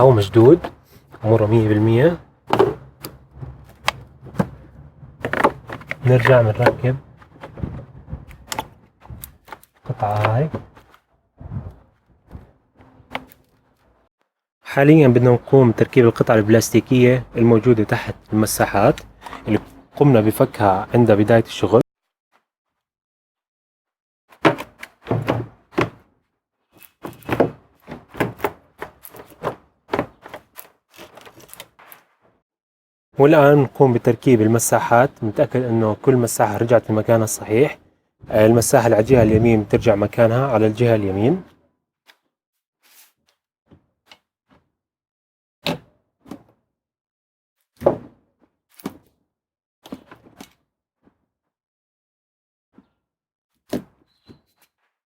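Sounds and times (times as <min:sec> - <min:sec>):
plastic panel knocking and clicking: 0:02.5 - 0:08.8.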